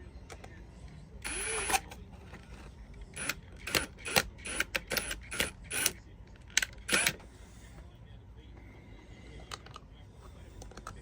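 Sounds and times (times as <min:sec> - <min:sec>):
cordless drill motor: 0:01.2 - 0:01.8, 0:03.2 - 0:06.0, 0:06.9 - 0:07.2
drill clicks: 0:01.2 - 0:01.8, 0:03.2 - 0:06.0, 0:06.6 - 0:07.2.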